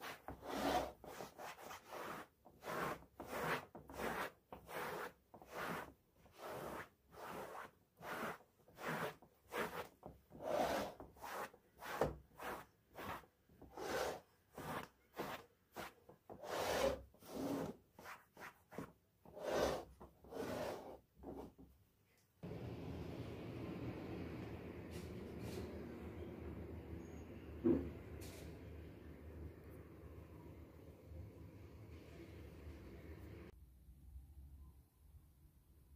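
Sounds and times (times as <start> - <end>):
cloth or brush scrubbing a surface: 0.0 - 21.5.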